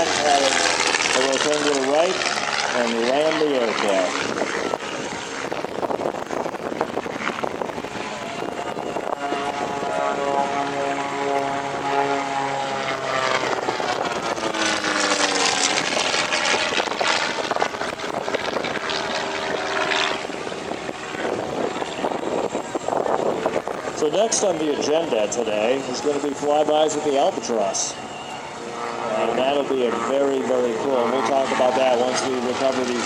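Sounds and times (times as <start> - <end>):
propeller aircraft engine passing: 0.0 - 33.0
second engine tone: 27.1 - 29.6.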